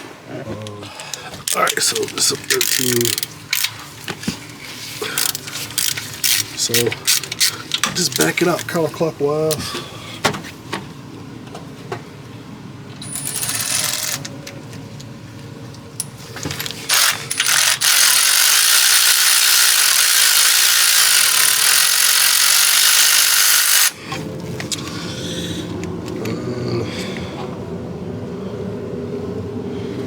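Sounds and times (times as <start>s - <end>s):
ratchet wrench ratcheting: 1.5s - 3.8s, 5.2s - 8.7s, 13.0s - 14.3s, 16.0s - 24.0s.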